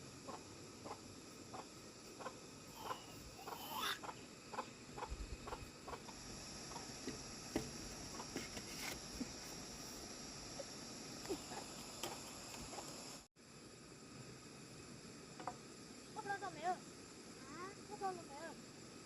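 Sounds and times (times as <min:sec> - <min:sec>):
insects trilling: 0:00.0 - 0:19.0
chickens clucking: 0:00.3 - 0:07.0.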